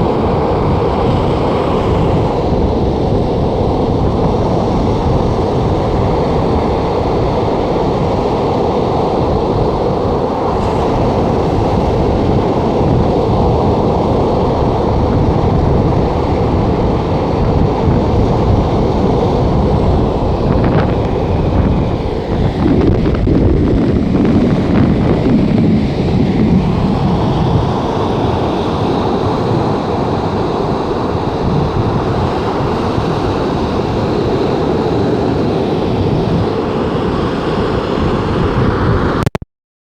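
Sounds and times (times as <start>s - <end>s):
wind blowing on microphone: 0.0s - 39.4s
surf breaking: 7.8s - 35.4s.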